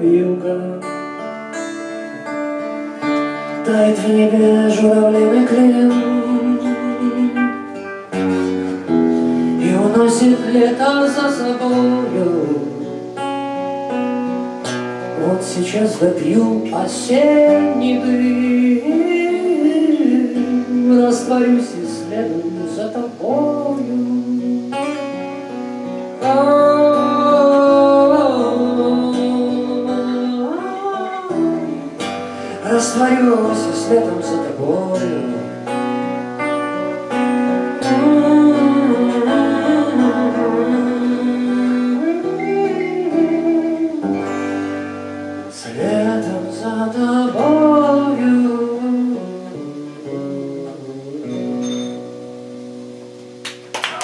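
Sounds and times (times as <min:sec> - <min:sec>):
man singing wordless notes: 0:00.0 - 0:52.0
acoustic guitar playing: 0:00.0 - 0:54.0
audience applause: 0:53.4 - 0:54.0.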